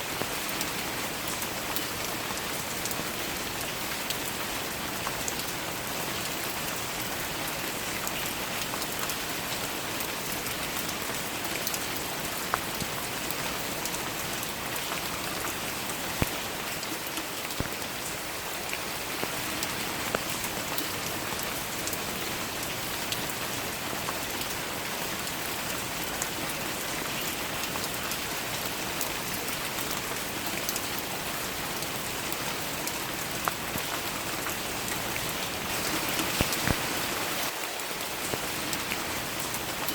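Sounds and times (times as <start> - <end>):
steady rain hiss: 0.0 - 39.9
close raindrop hits: 16.1 - 16.5, 17.5 - 18.2, 35.3 - 39.9.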